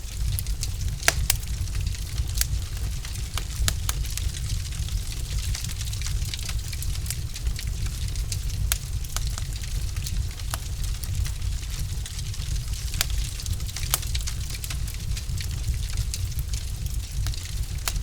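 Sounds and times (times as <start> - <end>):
log fire crackling: 0.0 - 18.0.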